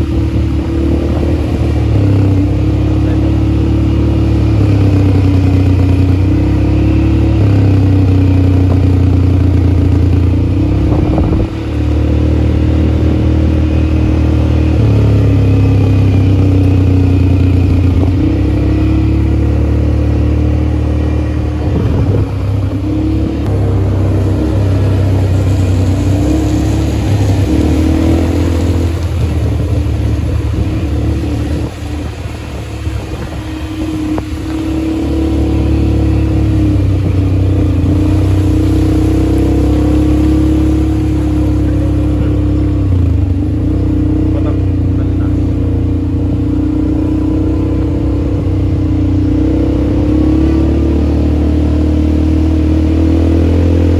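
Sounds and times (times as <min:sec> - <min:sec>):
atv engine running: 0:00.0 - 0:53.9.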